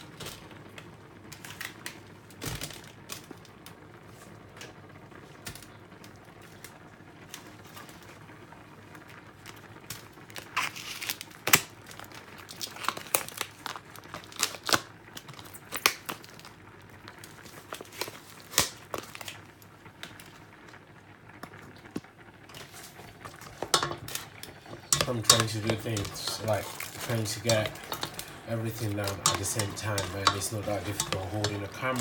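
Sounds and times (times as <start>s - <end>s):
fish crinkling and tearing: 0.1s - 3.6s, 9.3s - 20.8s, 21.6s - 32.0s.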